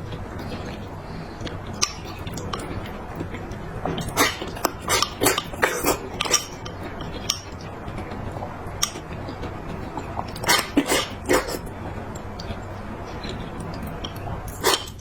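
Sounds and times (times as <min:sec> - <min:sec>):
utensils clinking against a bowl: 0:03.8 - 0:07.6, 0:13.2 - 0:15.0.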